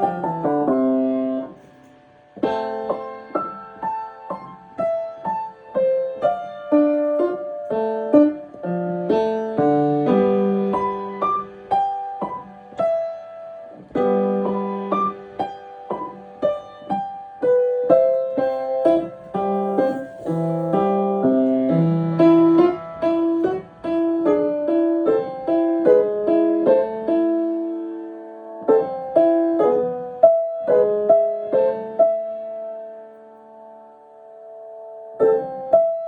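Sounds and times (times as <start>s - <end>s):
piano playing: 0.0s - 36.0s.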